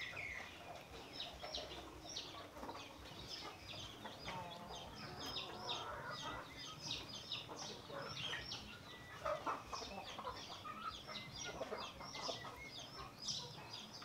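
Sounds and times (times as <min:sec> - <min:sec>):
birds chirping and clucking: 0:00.0 - 0:14.0.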